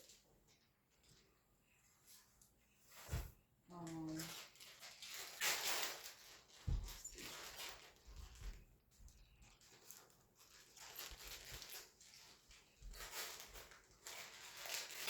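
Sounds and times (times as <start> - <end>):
packaging rustling: 4.0 - 8.6, 9.4 - 15.0.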